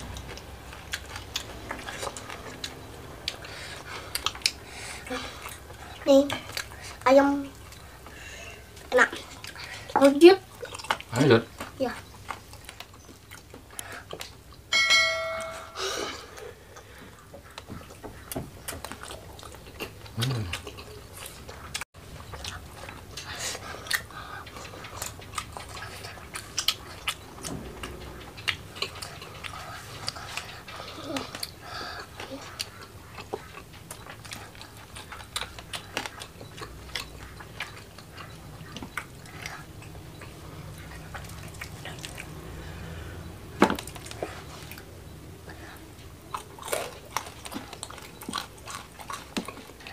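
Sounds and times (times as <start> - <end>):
soft eating and chewing: 0.0 - 14.7, 15.8 - 49.9
bell-like chime: 14.7 - 16.1.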